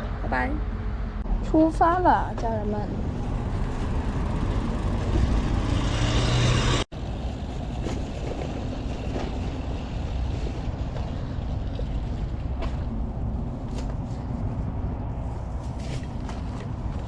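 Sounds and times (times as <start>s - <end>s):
vehicle passing: 0.0s - 7.4s
road noise and wind rumble: 0.0s - 17.0s.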